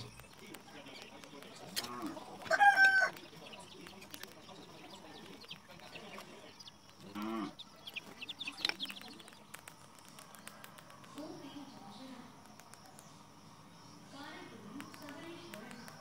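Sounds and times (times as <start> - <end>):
faint clicks: 8.4 - 11.6, 12.4 - 13.1, 14.7 - 16.0.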